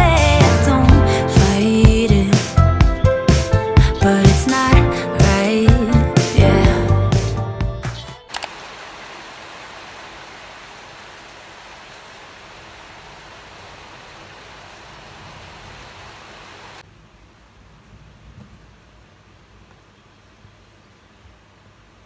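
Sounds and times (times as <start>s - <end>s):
heavy rain hissing: 8.2s - 16.8s.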